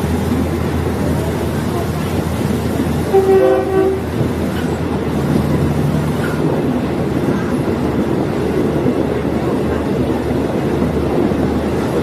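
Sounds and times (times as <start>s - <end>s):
train engine and wheel rumble: 0.0s - 12.0s
train horn blast: 3.0s - 4.2s.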